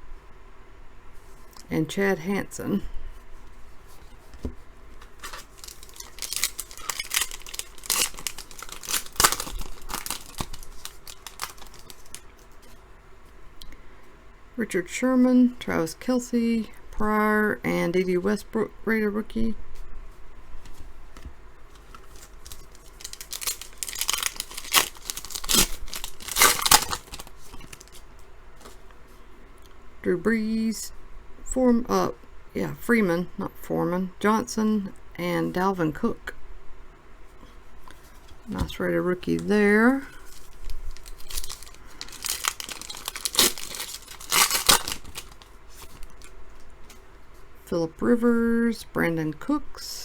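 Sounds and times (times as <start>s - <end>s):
card pack wrapper tearing and crinkling: 5.1s - 12.2s, 21.8s - 28.0s, 40.1s - 46.3s.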